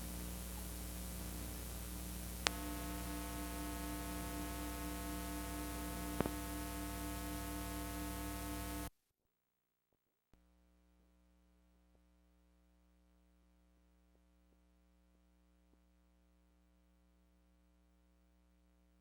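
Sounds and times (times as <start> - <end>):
low mains hum: 0.0 - 8.9
static hiss: 0.0 - 8.9
faint steady tones: 1.9 - 8.9
sharp clicks: 2.4 - 8.9.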